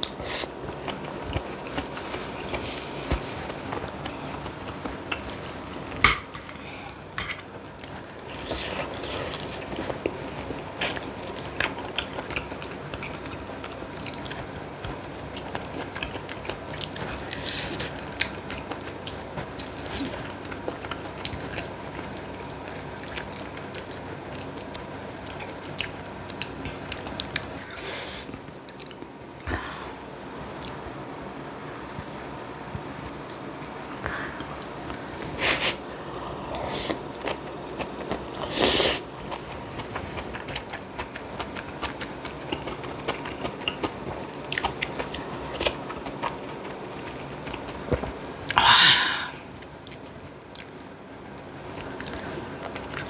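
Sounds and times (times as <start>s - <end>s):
chewing and biting food: 0.0s - 5.4s, 7.7s - 27.6s, 36.5s - 48.6s.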